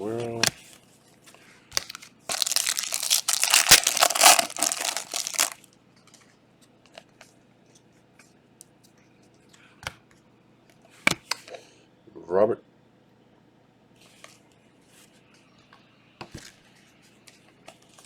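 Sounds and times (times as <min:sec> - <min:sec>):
wrapper tearing and crinkling: 0:01.8 - 0:05.6.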